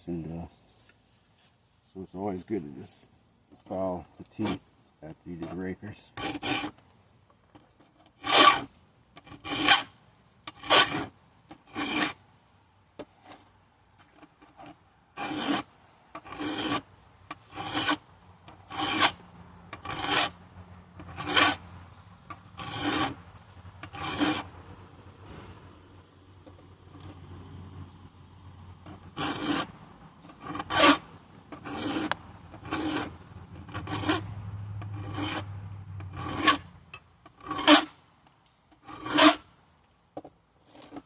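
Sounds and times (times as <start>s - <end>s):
file rasping on chain teeth: 6.2s - 6.8s, 8.2s - 9.9s, 10.5s - 11.1s, 11.7s - 12.2s, 14.6s - 16.8s, 17.4s - 18.0s, 18.7s - 19.2s, 19.8s - 20.3s, 21.0s - 21.6s, 22.6s - 23.2s, 23.8s - 24.4s, 28.9s - 29.7s, 30.4s - 31.0s, 31.6s - 34.3s, 35.0s - 35.5s, 36.1s - 36.6s, 37.4s - 37.9s, 38.8s - 39.4s.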